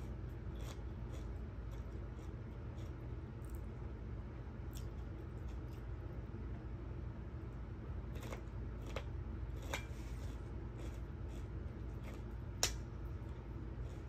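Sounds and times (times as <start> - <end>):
chewing: 0.0 - 3.7, 4.7 - 6.0, 8.1 - 14.0
crunches of crisp food: 0.0 - 6.9, 7.6 - 14.0
steady low hum: 0.0 - 14.0.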